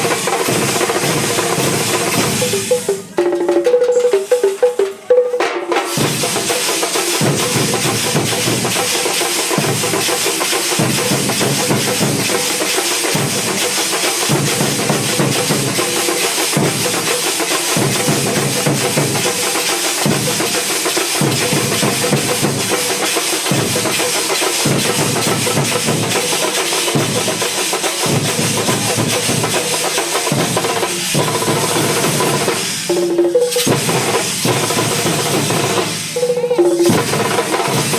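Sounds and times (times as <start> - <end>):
deep drum pattern: 0.0 - 17.1
drum band playing fast: 0.0 - 37.9.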